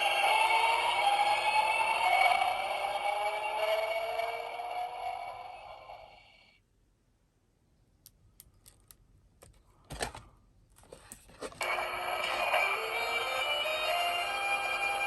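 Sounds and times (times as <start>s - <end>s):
electronic rising scale from small speaker: 0.0s - 6.5s, 11.6s - 15.0s.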